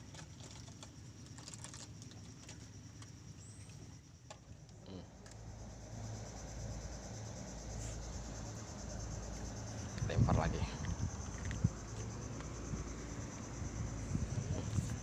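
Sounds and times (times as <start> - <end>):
high insect chorus: 0.0 - 15.0
low rumble: 5.5 - 15.0.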